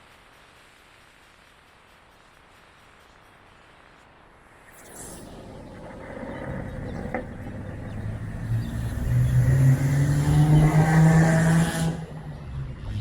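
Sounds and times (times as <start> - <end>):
car engine accelerating: 5.2 - 13.0.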